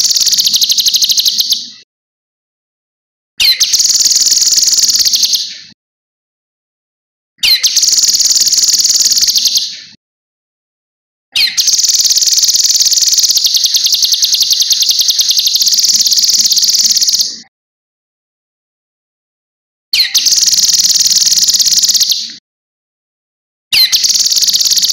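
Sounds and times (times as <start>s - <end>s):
songbird high rapid trill: 0.0s - 1.6s, 3.4s - 5.4s, 7.4s - 9.6s, 11.4s - 17.3s, 20.0s - 22.2s, 23.8s - 24.9s.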